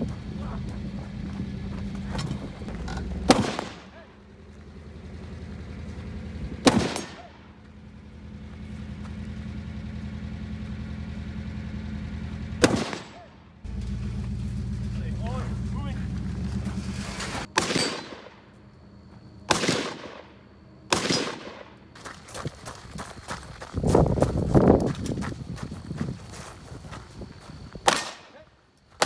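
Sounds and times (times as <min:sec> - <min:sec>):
low steady rumble: 0:00.0 - 0:29.0
gunshots with echo: 0:03.2 - 0:04.1, 0:06.6 - 0:07.5, 0:12.6 - 0:13.4, 0:17.5 - 0:18.4, 0:19.5 - 0:20.3, 0:20.9 - 0:21.8.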